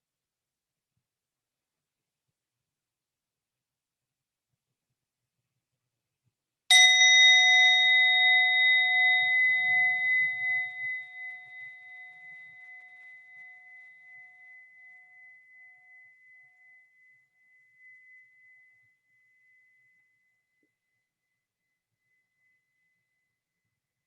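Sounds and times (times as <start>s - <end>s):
meditation bell ringing: 6.7s - 20.6s.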